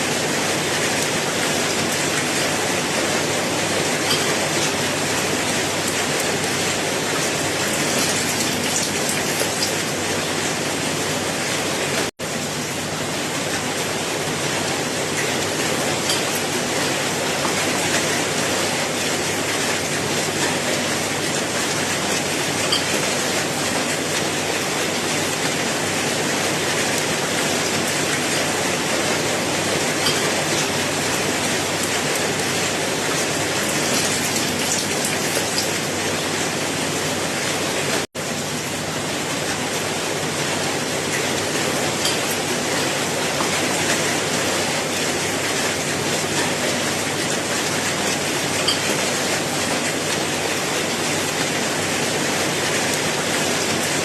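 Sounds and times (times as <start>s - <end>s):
steady rain hiss: 0.0s - 54.0s
sharp drips: 7.3s - 9.8s, 33.4s - 35.8s.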